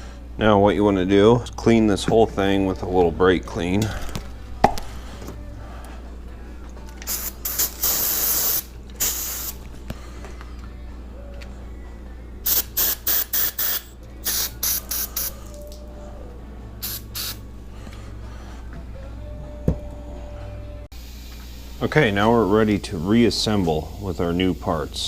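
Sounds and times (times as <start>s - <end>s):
aerosol can spraying: 7.0s - 9.7s, 12.4s - 15.6s, 16.8s - 17.4s.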